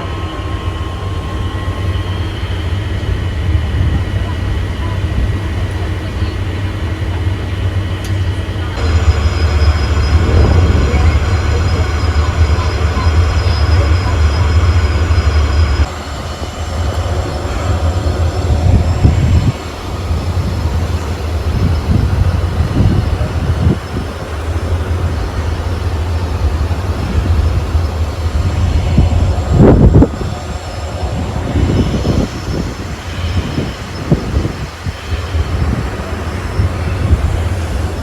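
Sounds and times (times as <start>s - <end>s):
wind buffeting microphone: 8.4s - 38.0s.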